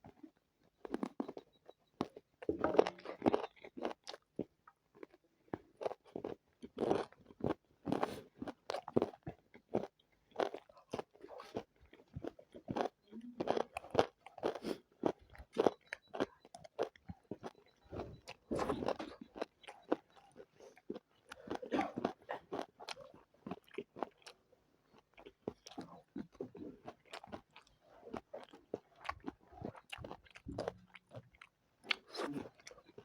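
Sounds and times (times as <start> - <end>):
chewing and crunching food: 0.0 - 33.0
wet mouth sounds: 28.4 - 32.9.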